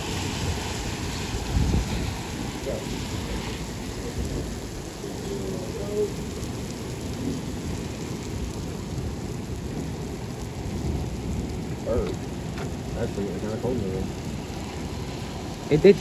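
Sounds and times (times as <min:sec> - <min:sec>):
low rumble of thunder: 0:00.0 - 0:16.0
steady rain: 0:00.0 - 0:16.0.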